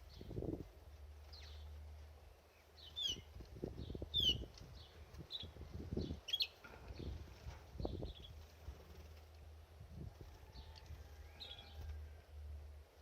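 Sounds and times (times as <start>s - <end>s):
bird high chirps: 2.8s - 7.2s.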